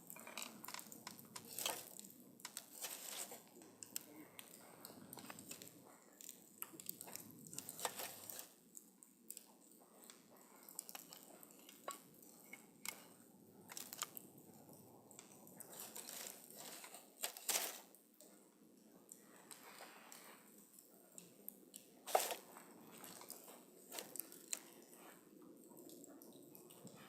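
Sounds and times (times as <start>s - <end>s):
campfire crackling and popping: 0.0s - 17.8s.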